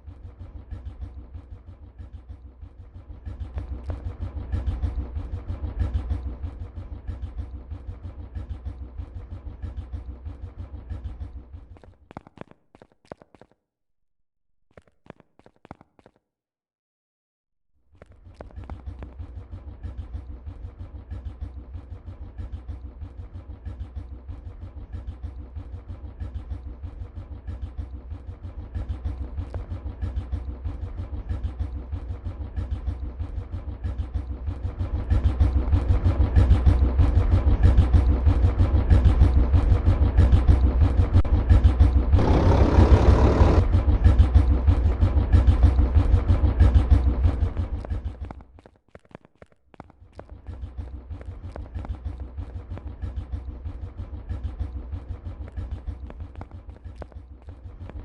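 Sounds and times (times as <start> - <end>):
tractor diesel engine running: 26.2 - 48.4
rush of noise: 42.2 - 44.0.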